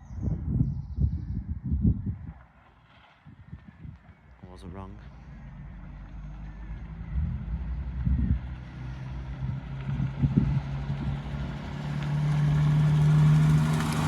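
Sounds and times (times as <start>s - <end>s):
car engine running: 5.1s - 14.0s.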